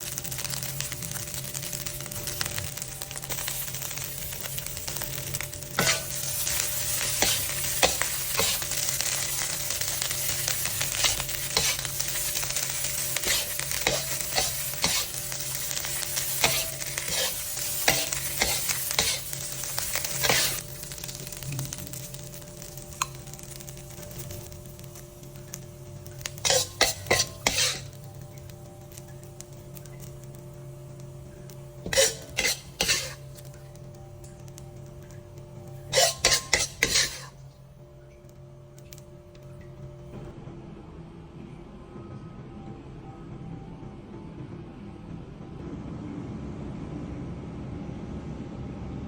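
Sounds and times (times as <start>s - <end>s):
rice sizzling in a pan: 0.0s - 40.1s
spatula scraping and knocking pan: 5.0s - 21.4s, 26.2s - 28.0s, 31.8s - 33.5s, 35.9s - 37.4s.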